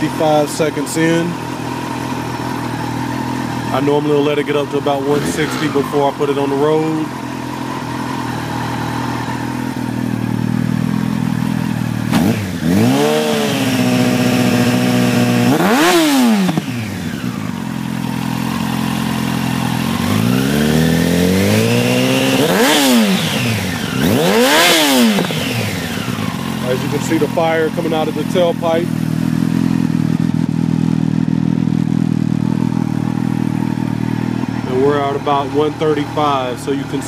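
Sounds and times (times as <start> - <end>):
motorcycle engine idling and revving: 0.0 - 37.0.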